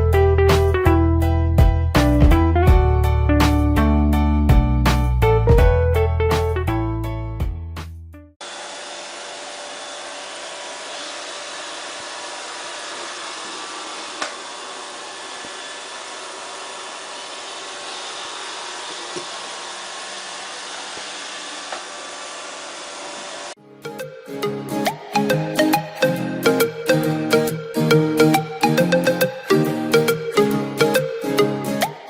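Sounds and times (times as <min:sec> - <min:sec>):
robot vacuum whirring: 0:08.4 - 0:23.6.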